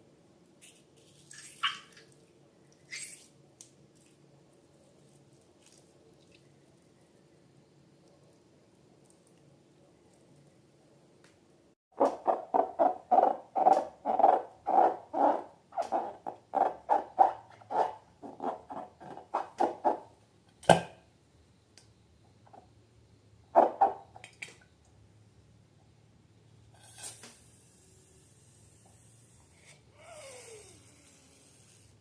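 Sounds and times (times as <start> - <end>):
wet slime squelches: 0.6 - 7.1.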